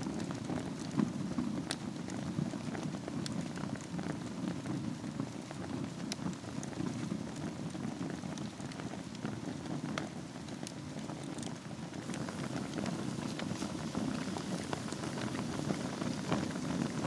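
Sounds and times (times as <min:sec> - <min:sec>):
wood fire burning: 0:00.0 - 0:17.0.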